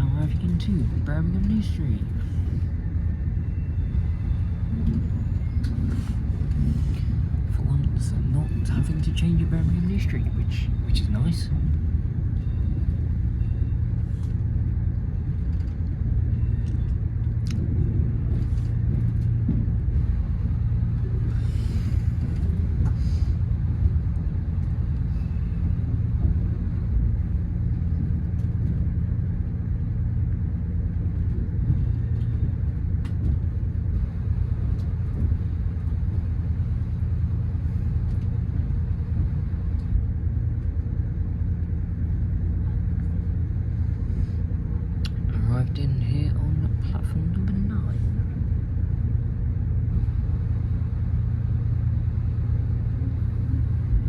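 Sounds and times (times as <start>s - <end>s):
diesel train engine rumbling: 0.0s - 54.0s.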